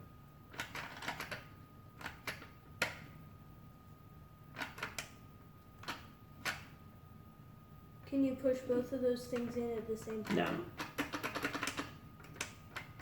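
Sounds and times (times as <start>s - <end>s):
faint high whine: 0.0s - 0.5s, 1.5s - 4.5s, 5.1s - 10.8s
toy mechanism clicks and taps: 0.5s - 3.0s, 4.6s - 5.2s, 9.3s - 13.0s.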